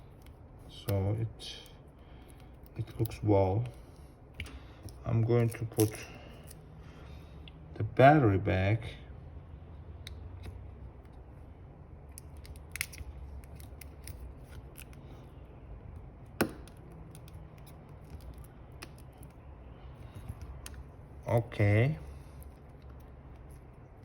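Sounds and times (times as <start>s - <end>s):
low steady hum: 0.0s - 24.0s
tools clicking on smartphone parts: 12.1s - 15.0s, 16.0s - 19.4s.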